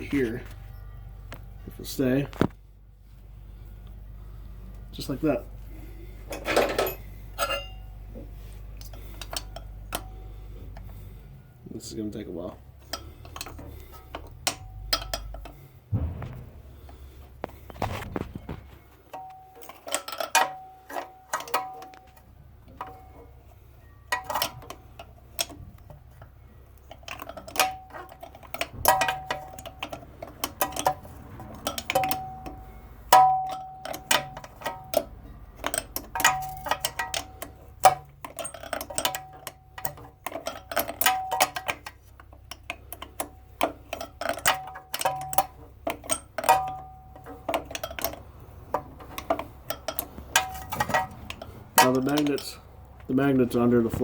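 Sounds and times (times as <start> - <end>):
short metallic ring: 6.5 - 7.9.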